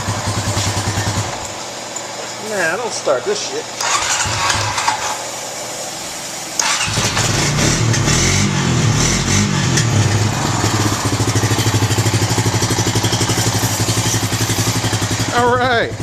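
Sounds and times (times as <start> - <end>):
atv engine revving and idling: 0.0 - 1.5, 3.8 - 5.3, 6.6 - 16.0.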